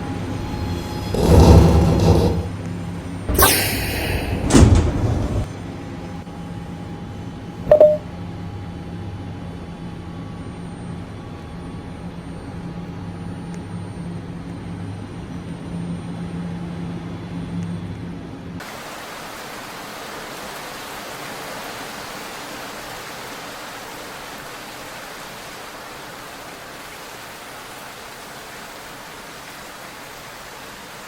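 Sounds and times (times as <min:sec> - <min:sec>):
subway train low hum: 0:00.0 - 0:18.6
subway train hissing bursts: 0:03.3 - 0:05.5.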